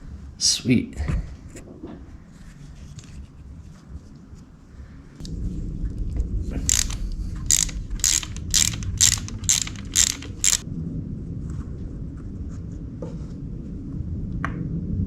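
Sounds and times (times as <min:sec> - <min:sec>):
ratchet wrench clicking: 0:06.7 - 0:10.6.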